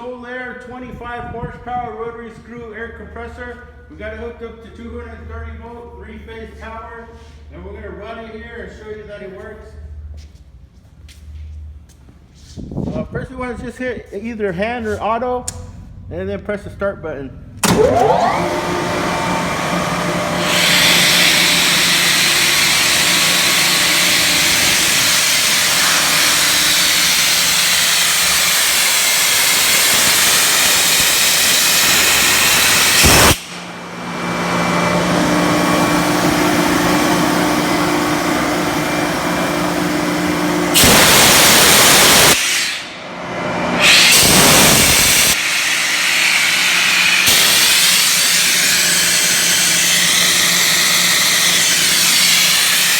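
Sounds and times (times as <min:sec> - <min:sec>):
air compressor running: 0:17.6 - 0:52.9
loud air hiss: 0:20.2 - 0:33.9, 0:40.7 - 0:43.0, 0:43.7 - 0:52.9.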